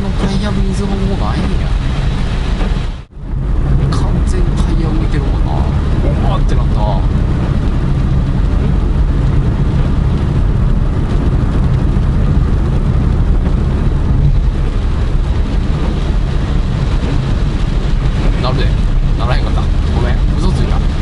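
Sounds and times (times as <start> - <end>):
driver talking: 0.0 - 1.9, 3.8 - 7.2, 18.3 - 21.0
car cabin road rumble: 0.0 - 21.0.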